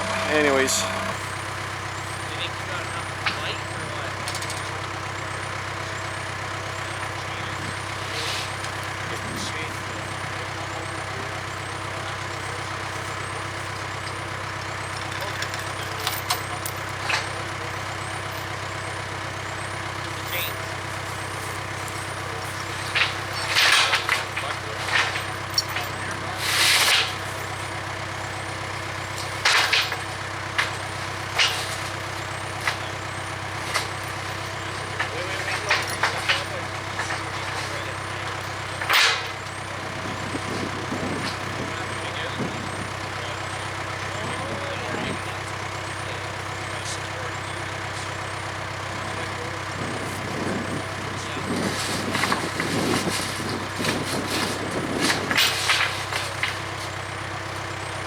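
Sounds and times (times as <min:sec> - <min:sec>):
diesel engine running: 0:00.0 - 0:58.0
scraping and clattering: 0:33.6 - 0:39.4, 0:51.6 - 0:56.6.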